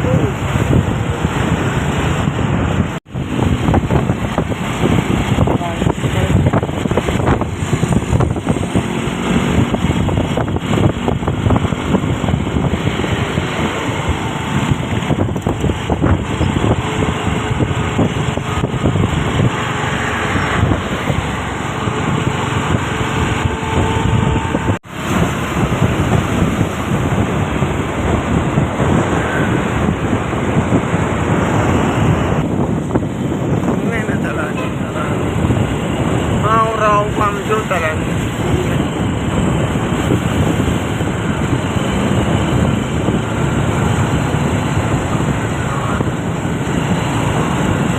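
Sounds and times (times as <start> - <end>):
truck engine and road noise: 0.0 - 47.9
wind buffeting microphone: 0.0 - 47.9.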